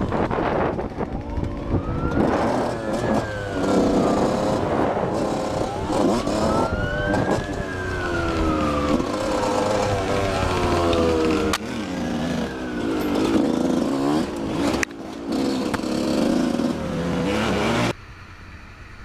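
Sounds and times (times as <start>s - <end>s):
emergency vehicle siren wailing: 0.0s - 14.3s
traffic noise: 0.0s - 19.0s.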